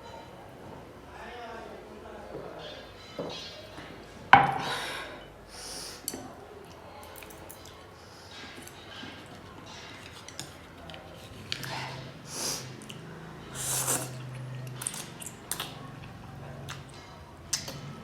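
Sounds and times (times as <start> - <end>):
noodle slurping: 13.5 - 15.4.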